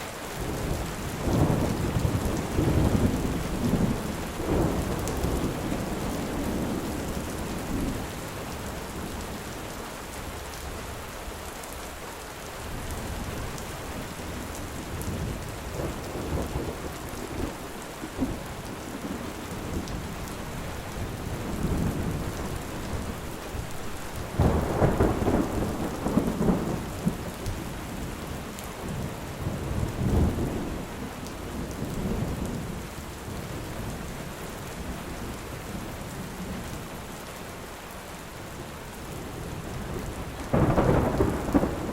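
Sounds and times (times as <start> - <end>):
steady rain: 0.0 - 41.9
thunder rumbling: 0.4 - 9.3, 13.0 - 28.2, 39.1 - 41.9.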